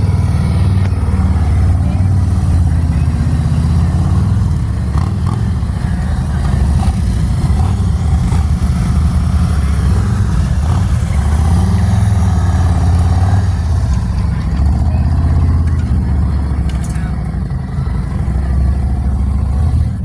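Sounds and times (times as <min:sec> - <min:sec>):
motorcycle engines idling: 0:00.0 - 0:20.0.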